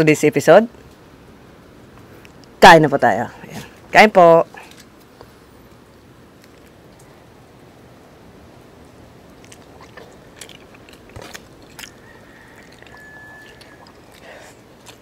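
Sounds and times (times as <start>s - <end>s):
chewing: 9.3s - 15.0s
fingers tearing crispy skin: 9.4s - 15.0s.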